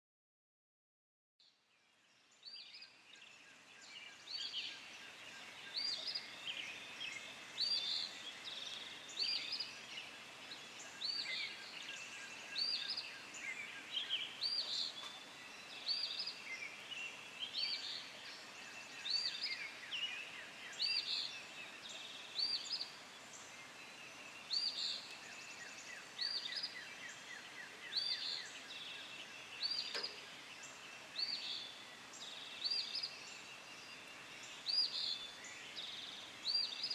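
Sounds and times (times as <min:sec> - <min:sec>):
birds trilling and chirping: 0:04.1 - 0:36.9.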